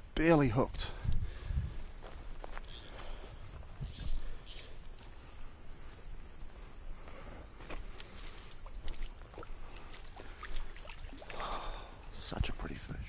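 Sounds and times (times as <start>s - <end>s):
cicadas buzzing: 0.0s - 13.0s
water splashes: 8.6s - 12.0s.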